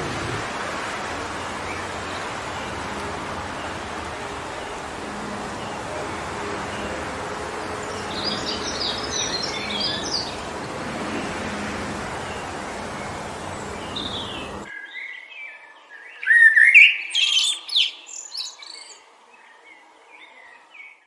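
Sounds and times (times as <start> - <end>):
wind through trees: 0.0 - 21.0
bird singing high notes: 1.3 - 14.9.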